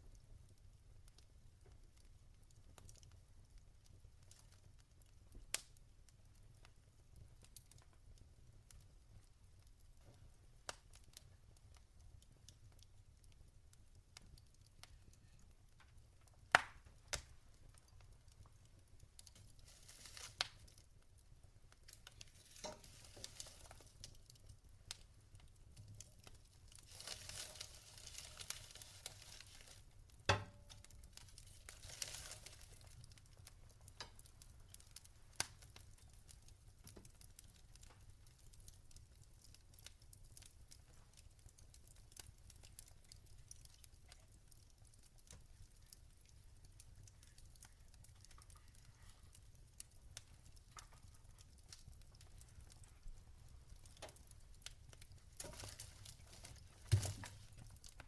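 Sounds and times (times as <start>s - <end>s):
logs crackling and popping: 0.0s - 58.0s
soft hissing: 19.6s - 20.6s, 22.2s - 24.0s.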